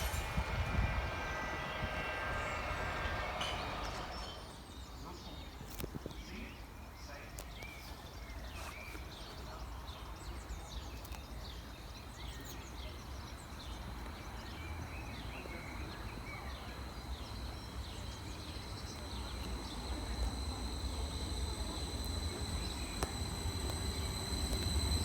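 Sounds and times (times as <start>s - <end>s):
low rumble: 0.0s - 4.6s
high-pitched whine: 0.0s - 4.7s, 14.3s - 25.0s
small birds chirping: 6.0s - 25.0s.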